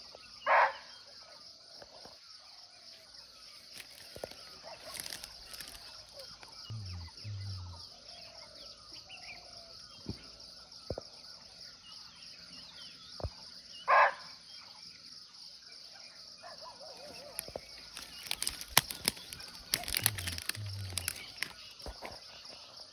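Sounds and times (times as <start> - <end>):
faint bird chirps: 0.0 - 22.9
high insect drone: 1.4 - 13.6, 17.0 - 22.9
sharp clicks and crackles: 17.4 - 21.6.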